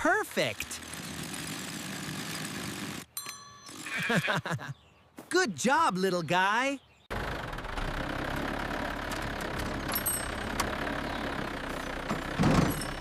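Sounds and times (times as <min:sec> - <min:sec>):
excavator engine running: 0:00.0 - 0:03.1, 0:07.1 - 0:13.0.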